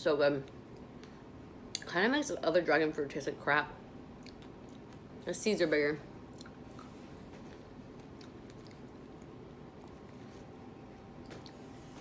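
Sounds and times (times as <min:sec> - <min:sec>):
chewing soft fruit: 0:04.2 - 0:05.2, 0:06.2 - 0:12.0.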